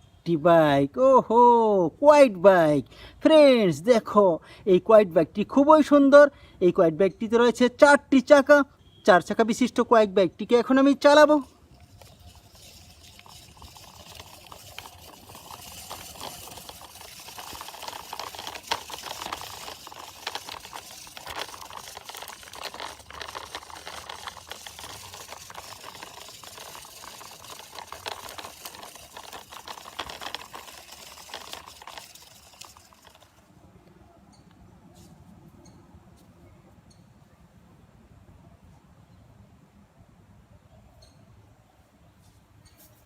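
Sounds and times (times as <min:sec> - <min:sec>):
plastic toy wheels rolling: 0:10.6 - 0:33.6.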